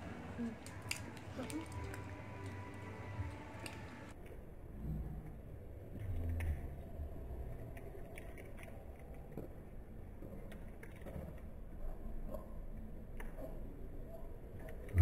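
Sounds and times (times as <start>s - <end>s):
people chewing with crunches: 0.0s - 4.2s, 6.0s - 11.5s
low background rumble: 0.0s - 15.0s
wrapper rustles and clicks: 0.4s - 2.9s.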